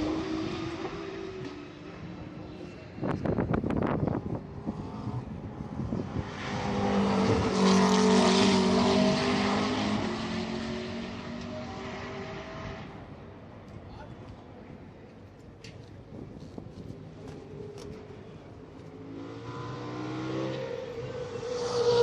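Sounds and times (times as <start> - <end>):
race car passing at speed: 0.0 - 13.1, 18.9 - 22.0.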